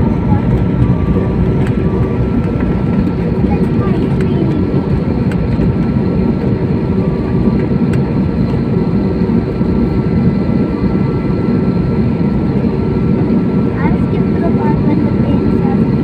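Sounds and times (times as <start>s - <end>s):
airliner engines rumbling: 0.0s - 16.0s.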